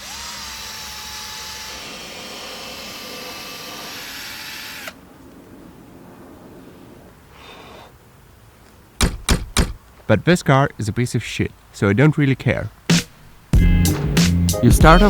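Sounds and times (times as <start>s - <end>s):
sanding pad gritty hiss: 0.0s - 4.9s
drill motor whine: 0.0s - 5.0s.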